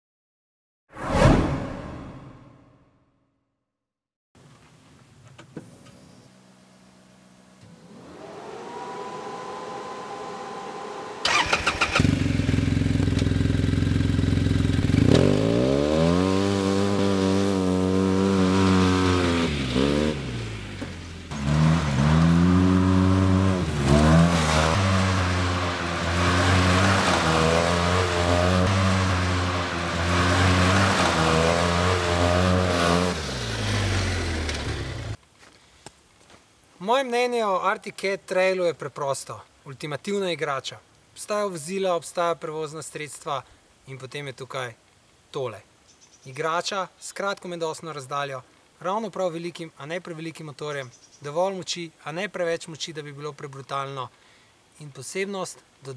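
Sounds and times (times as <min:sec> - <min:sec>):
rising electric whine: 0:05.8 - 0:11.3
engine starting and revving: 0:07.6 - 0:35.2.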